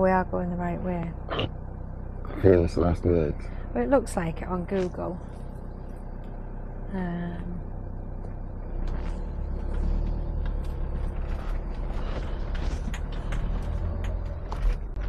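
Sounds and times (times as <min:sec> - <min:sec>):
engine and road rumble: 0:00.0 - 0:15.0
cab creaks and rattles: 0:08.2 - 0:15.0.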